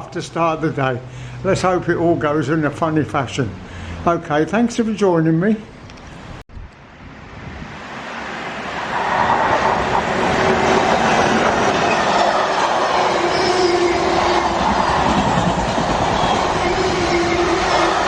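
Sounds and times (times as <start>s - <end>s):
train running on rails: 6.9s - 18.0s.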